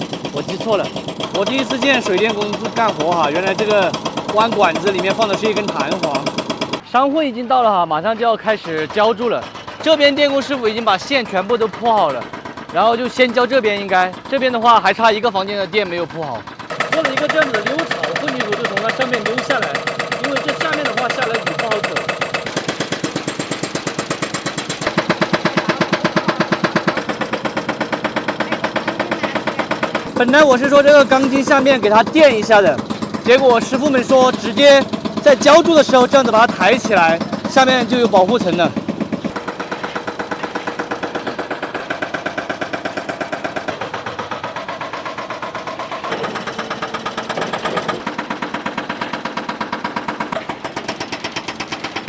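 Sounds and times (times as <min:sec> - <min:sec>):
diesel truck engine chugging: 0:00.0 - 0:52.0.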